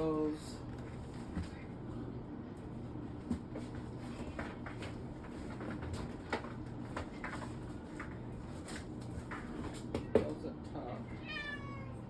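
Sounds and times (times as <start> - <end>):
steady low hum: 0.0 - 12.0
packages knocking and rustling: 3.2 - 10.4.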